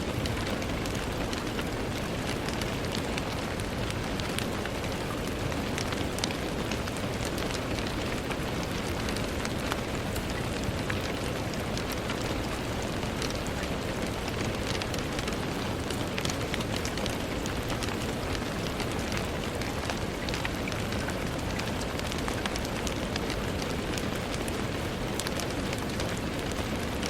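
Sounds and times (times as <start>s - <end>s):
rain pattering on a window: 0.0s - 27.0s.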